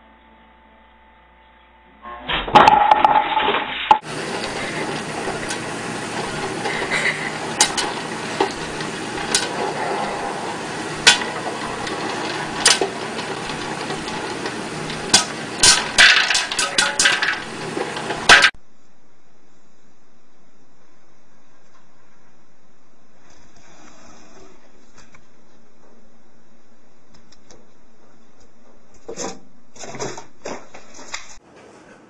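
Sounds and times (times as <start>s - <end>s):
popcorn popping: 2.6s - 18.6s
hot oil sizzling: 4.0s - 18.6s.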